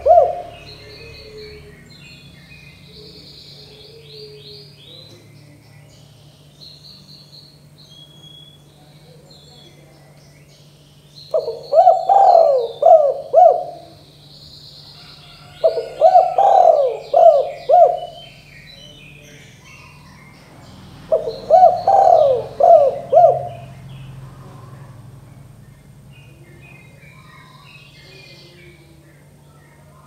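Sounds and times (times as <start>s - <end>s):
dove cooing: 0.0s - 1.9s, 2.7s - 5.2s, 11.3s - 14.2s, 14.9s - 20.3s, 21.0s - 25.5s
small birds chirping: 0.0s - 30.0s.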